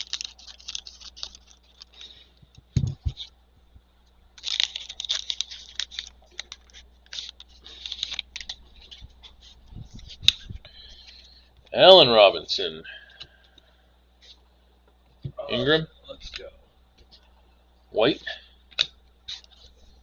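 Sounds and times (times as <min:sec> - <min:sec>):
card packaging rustling and clicking: 0:00.0 - 0:03.3, 0:04.4 - 0:11.2.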